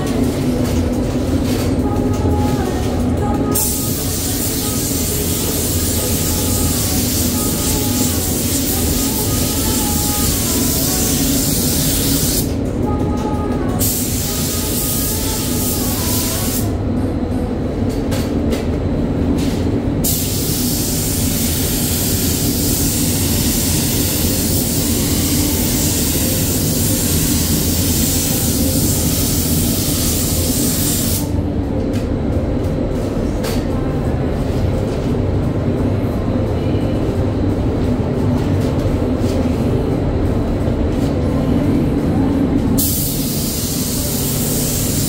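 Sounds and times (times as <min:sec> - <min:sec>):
paint spray gun hissing: 0:03.6 - 0:12.5, 0:20.0 - 0:31.3, 0:42.8 - 0:45.0.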